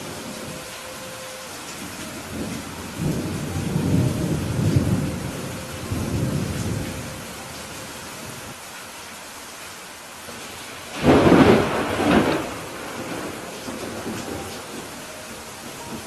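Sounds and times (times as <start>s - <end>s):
thunder rumbling: 0.0s - 8.6s, 10.8s - 16.0s
steady rain: 0.0s - 16.0s.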